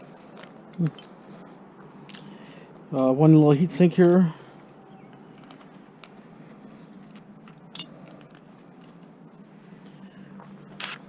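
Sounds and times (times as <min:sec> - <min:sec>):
low steady hum: 0:00.0 - 0:11.0
sharp clicks of parts and tools: 0:07.1 - 0:09.1.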